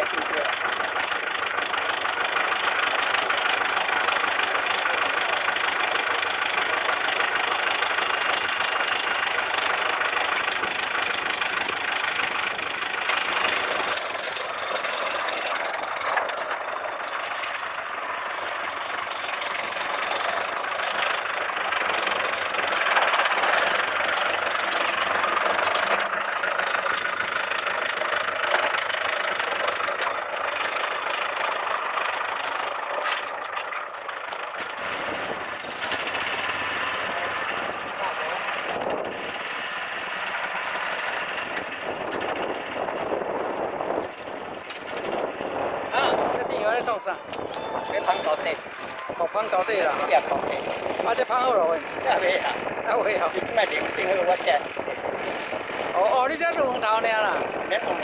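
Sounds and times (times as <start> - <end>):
planting machine engine running: 0.0 - 58.0.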